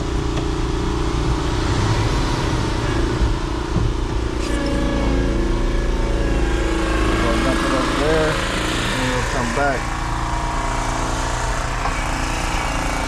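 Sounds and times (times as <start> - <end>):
diesel engine running: 0.0 - 13.0
second engine tone: 4.2 - 13.0.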